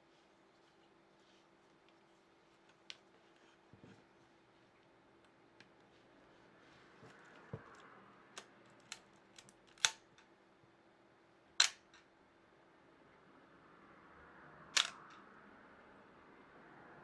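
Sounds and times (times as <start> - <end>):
camera handling clicks: 8.4 - 10.1
camera shutter clack: 14.8 - 15.1.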